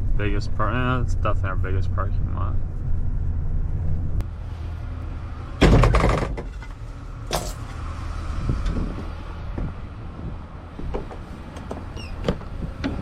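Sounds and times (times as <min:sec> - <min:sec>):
car door opening: 0:10.8 - 0:13.0
car door shutting: 0:10.8 - 0:13.0.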